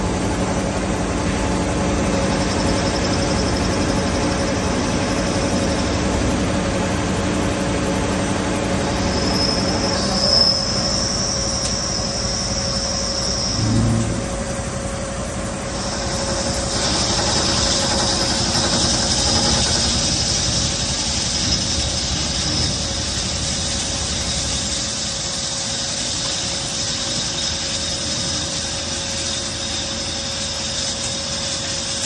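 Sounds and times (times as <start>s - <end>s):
lathe machine hum: 0.0s - 32.0s
high-pitched squeal: 8.8s - 32.0s.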